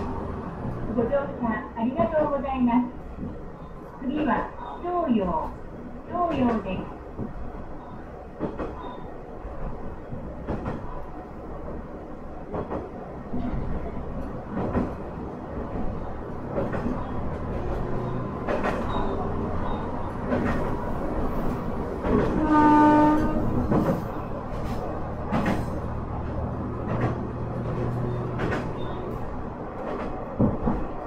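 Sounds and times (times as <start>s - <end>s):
diesel train rumble: 0.0s - 31.0s
wheels clicking over rail joints: 6.2s - 11.1s, 12.5s - 31.0s
train horn: 22.2s - 23.6s.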